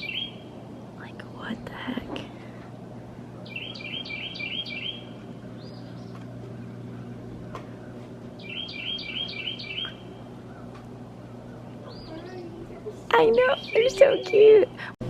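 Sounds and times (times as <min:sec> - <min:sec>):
songbird singing: 0:00.0 - 0:01.7, 0:02.8 - 0:14.6
steady low hum: 0:00.0 - 0:15.0.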